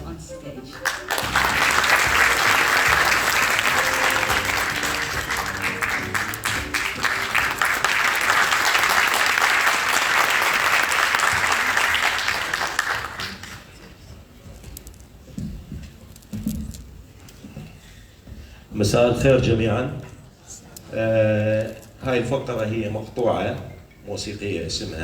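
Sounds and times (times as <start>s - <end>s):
audience applauding: 0.7s - 13.8s.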